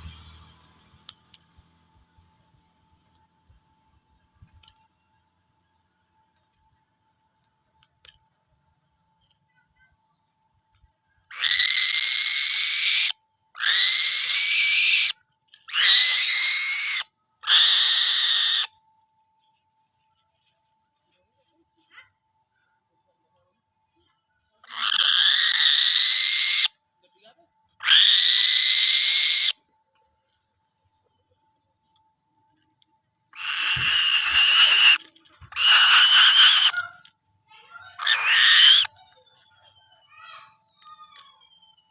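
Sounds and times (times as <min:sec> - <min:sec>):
bird of prey screeching: 0:11.3 - 0:18.7, 0:24.6 - 0:26.7, 0:27.8 - 0:29.6, 0:33.3 - 0:37.1, 0:37.9 - 0:39.0.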